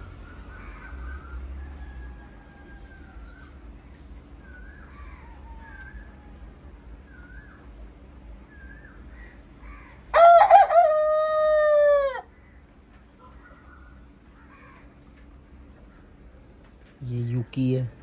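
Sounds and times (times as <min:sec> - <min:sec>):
rooster crowing: 0:00.5 - 0:03.7, 0:04.8 - 0:06.5, 0:09.6 - 0:12.3.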